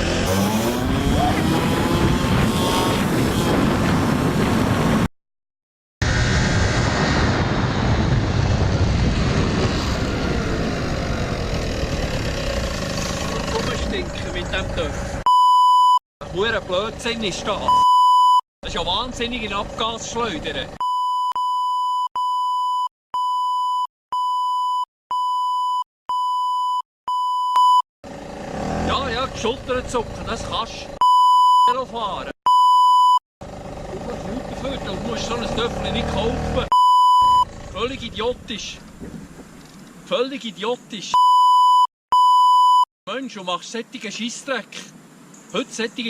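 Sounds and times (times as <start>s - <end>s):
motorcycle engine running: 0.0s - 2.8s, 10.8s - 15.2s, 28.1s - 30.3s, 33.4s - 36.6s, 37.4s - 38.0s
wind rush on microphone: 0.9s - 5.1s, 6.0s - 12.8s, 37.6s - 39.8s
censor bleep tone: 15.3s - 16.0s, 17.7s - 18.4s, 20.8s - 27.8s, 31.0s - 31.8s, 32.5s - 33.2s, 36.7s - 37.5s, 41.2s - 42.9s.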